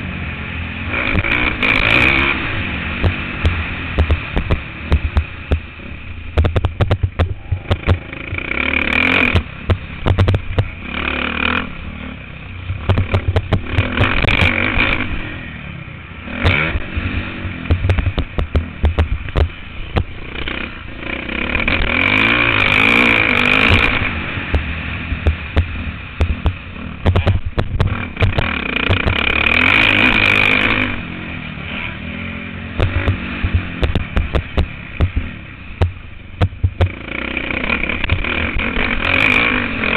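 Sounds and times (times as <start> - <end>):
motocross engine revving: 0.0 - 39.9
sharp knocks and rattles: 3.0 - 5.7, 6.3 - 10.8, 12.7 - 15.0, 16.4 - 20.6, 23.4 - 31.0, 32.8 - 39.4.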